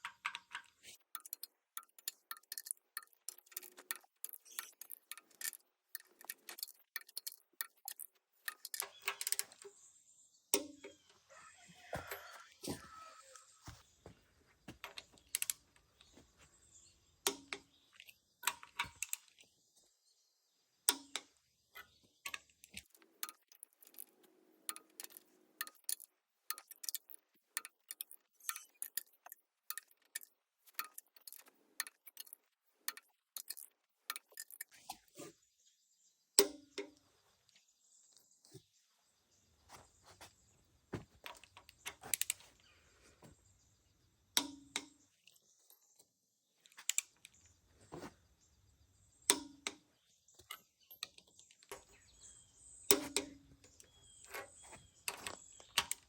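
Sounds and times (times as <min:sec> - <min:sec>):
metal tools clicking and clinking: 0:00.0 - 0:09.7.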